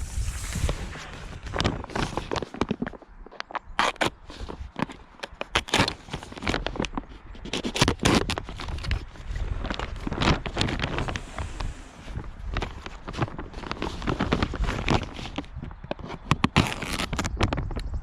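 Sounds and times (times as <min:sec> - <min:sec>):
plastic sheeting crackling: 0:05.5 - 0:17.2.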